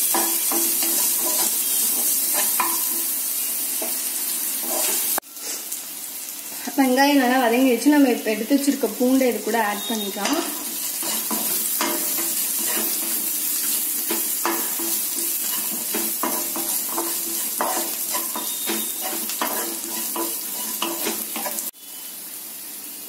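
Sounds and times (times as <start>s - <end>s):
wooden spatula scraping a pan: 0.0s - 3.0s, 4.6s - 5.2s, 9.9s - 21.7s
shallots and garlic sizzling in oil: 0.0s - 23.0s.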